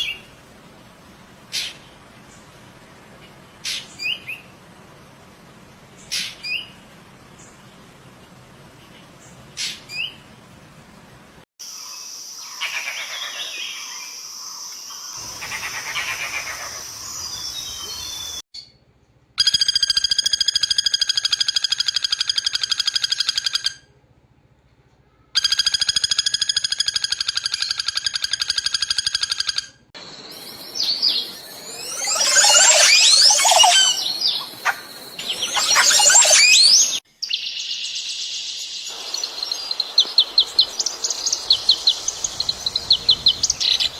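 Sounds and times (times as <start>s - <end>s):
rapid buzzing bird trill: 25.4s - 37.0s
birds calling and singing: 30.2s - 43.9s
birds chirping and chattering: 30.3s - 37.9s.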